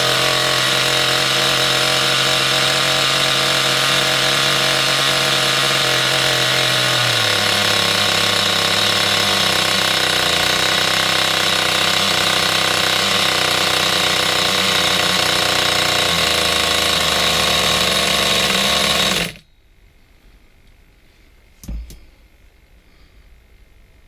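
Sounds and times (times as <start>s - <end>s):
nitro rc car engine running: 0.0s - 19.4s
short knock: 21.6s - 22.0s.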